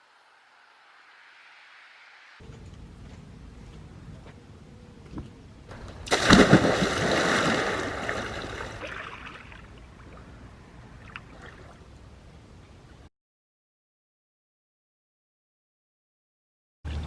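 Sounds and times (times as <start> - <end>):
water splashing and sloshing: 5.7 - 13.1.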